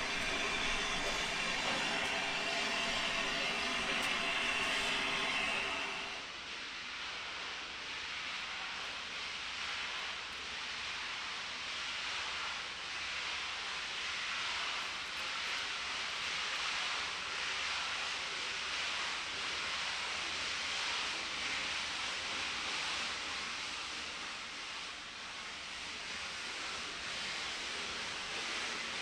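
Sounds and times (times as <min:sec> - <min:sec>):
steam locomotive hissing: 0:00.0 - 0:06.4.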